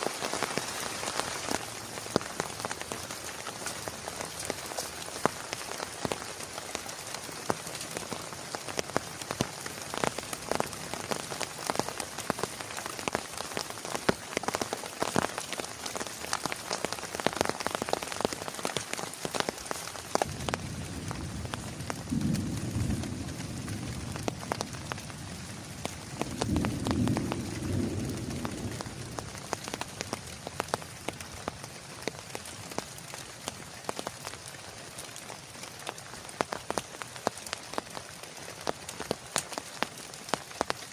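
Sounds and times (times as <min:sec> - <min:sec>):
heavy rain falling: 0:00.0 - 0:40.9
raindrops ticking on surface: 0:00.0 - 0:40.9
rolling thunder: 0:20.2 - 0:29.6.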